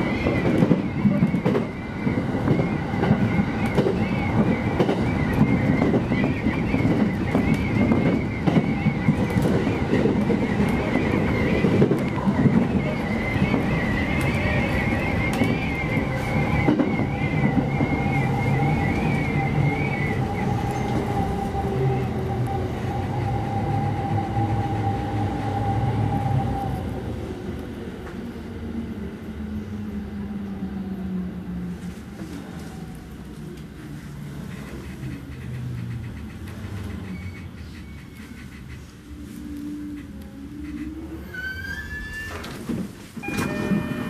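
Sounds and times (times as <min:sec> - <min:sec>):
wavering brake squeal: 0:00.0 - 0:26.8, 0:36.8 - 0:38.4, 0:40.8 - 0:42.6, 0:43.2 - 0:44.0
train running rumble: 0:00.0 - 0:44.0.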